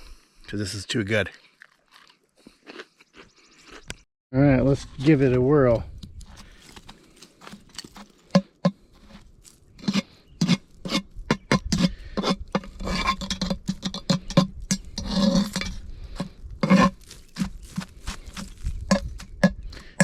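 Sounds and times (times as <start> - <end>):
utensils knocking and scraping in pan: 9.8 - 20.0.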